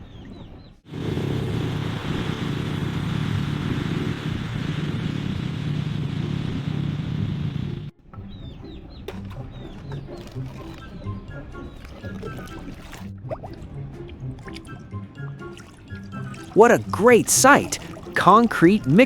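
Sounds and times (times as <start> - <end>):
motorcycle engine running: 0.9 - 7.9.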